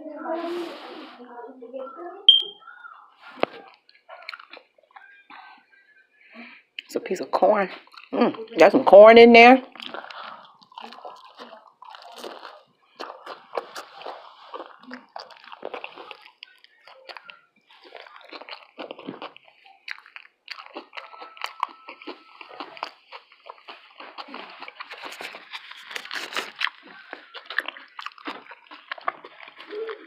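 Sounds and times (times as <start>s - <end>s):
crunchy taco shells being chewed: 2.6s - 5.8s, 7.7s - 8.6s, 9.6s - 30.0s
wet squishy mouth noises: 3.2s - 5.6s, 7.8s - 8.6s, 9.6s - 30.0s.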